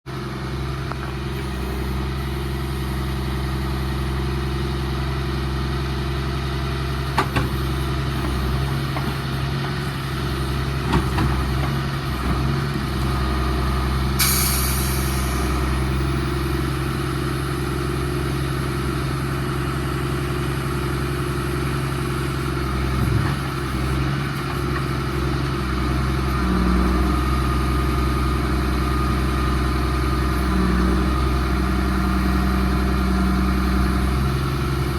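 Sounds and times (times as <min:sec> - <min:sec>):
diesel truck engine idling: 0:11.5 - 0:26.3, 0:27.2 - 0:34.9
short air hiss: 0:14.2 - 0:15.7.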